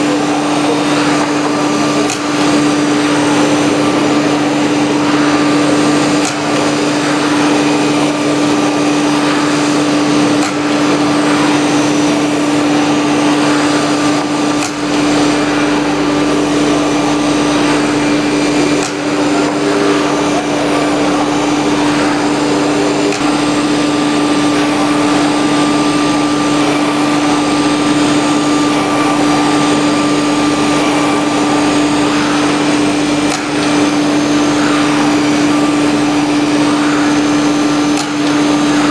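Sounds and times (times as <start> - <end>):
cutting and dust extraction noise: 0.0 - 38.9
router spindle hum: 0.0 - 38.9
clicks: 9.2 - 12.3, 13.2 - 35.6, 37.9 - 38.8.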